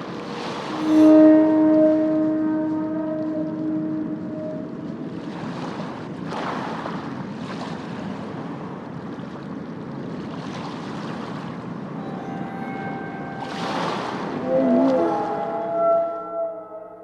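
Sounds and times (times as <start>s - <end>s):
steady rushing ambient noise: 0.0s - 7.4s, 11.3s - 16.2s.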